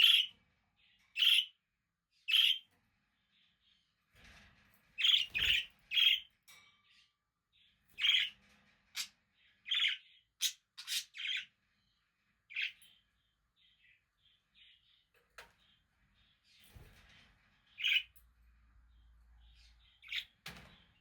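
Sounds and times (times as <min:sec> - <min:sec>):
budgerigars chirping: 0:00.0 - 0:00.3, 0:01.2 - 0:01.5, 0:02.3 - 0:02.6, 0:08.0 - 0:08.3, 0:09.7 - 0:11.5.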